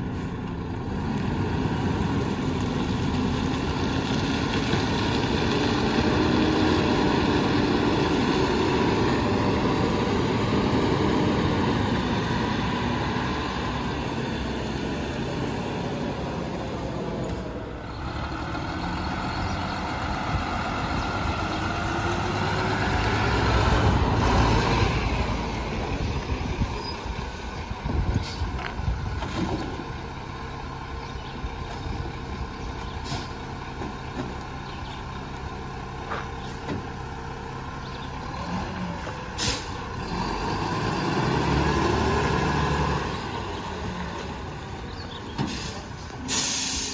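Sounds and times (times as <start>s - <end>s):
garbage truck engine revving: 0.9s - 26.8s, 36.4s - 46.9s.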